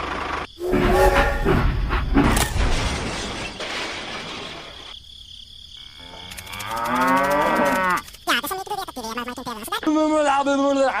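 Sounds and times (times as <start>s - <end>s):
loud crash of something breaking: 0.6s - 4.9s.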